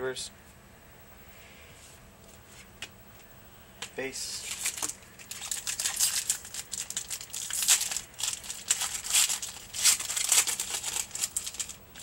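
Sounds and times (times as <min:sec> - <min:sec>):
wrapper tearing and crinkling: 0:04.4 - 0:12.0.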